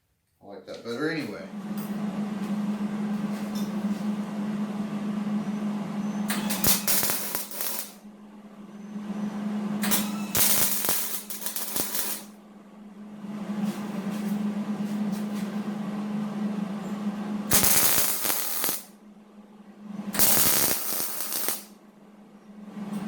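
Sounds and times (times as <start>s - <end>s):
steady low hum: 0.6s - 23.0s
arc welding crackle and hiss: 6.3s - 8.0s, 9.8s - 12.4s, 17.5s - 19.0s, 20.2s - 21.8s.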